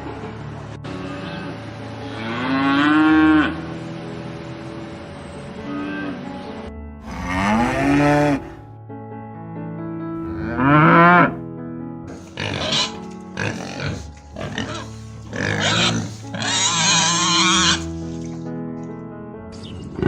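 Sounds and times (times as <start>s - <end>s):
background music: 0.0s - 20.0s
farm animals calling: 12.1s - 18.3s
harsh squealing animal calls: 12.1s - 18.3s.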